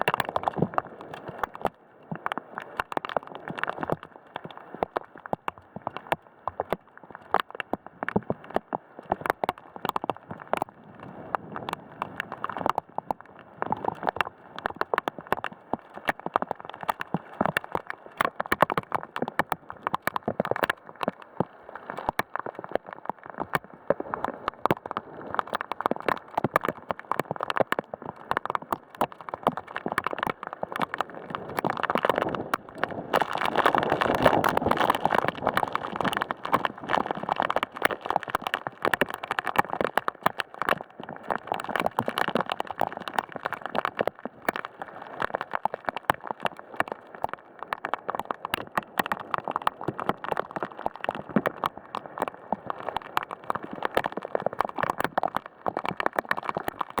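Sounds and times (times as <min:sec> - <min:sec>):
raindrop impacts: 0:13.7 - 0:57.0.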